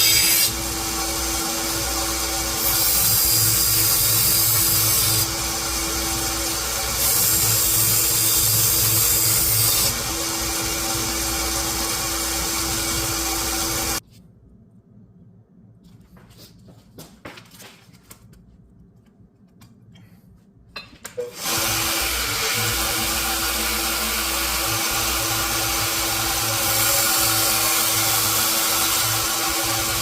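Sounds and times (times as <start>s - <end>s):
electric power tool humming: 0.0s - 14.0s, 21.3s - 30.0s.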